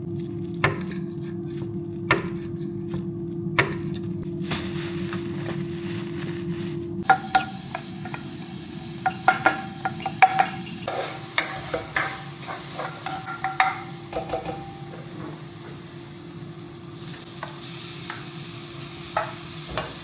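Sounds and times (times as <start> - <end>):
food sizzling in a pan: 4.3 - 20.0
utensil clinking and scraping pan: 7.0 - 8.3, 9.0 - 15.8.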